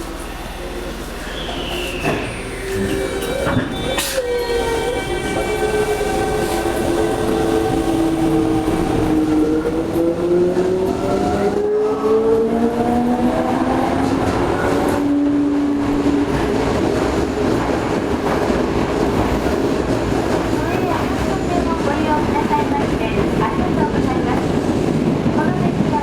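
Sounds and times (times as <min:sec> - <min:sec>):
train motor whine: 0:00.0 - 0:10.1.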